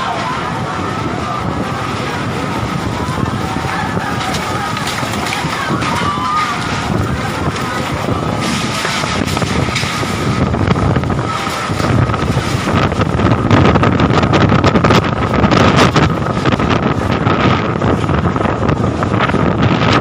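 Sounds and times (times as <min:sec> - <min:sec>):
gusty wind buffeting microphone: 0:00.0 - 0:20.0.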